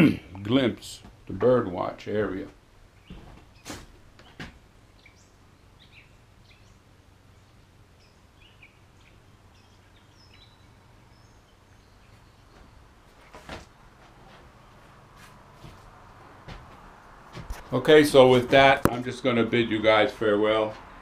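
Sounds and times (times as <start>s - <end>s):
low background hum: 0.0s - 21.0s
small birds chirping: 2.3s - 15.6s.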